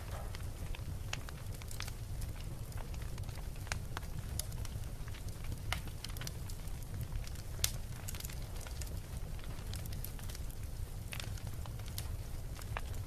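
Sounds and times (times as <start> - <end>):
steady low rumble: 0.0 - 5.1
bonfire crackling and popping: 0.0 - 13.0.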